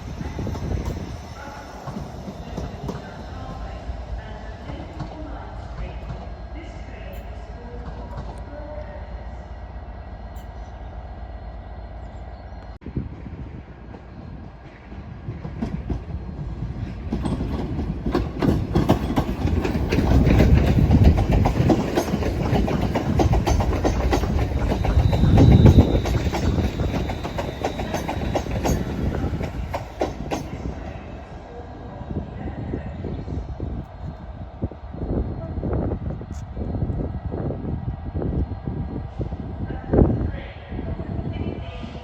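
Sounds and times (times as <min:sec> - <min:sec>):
train wheels clicking over rail joints: 0:15.3 - 0:30.9.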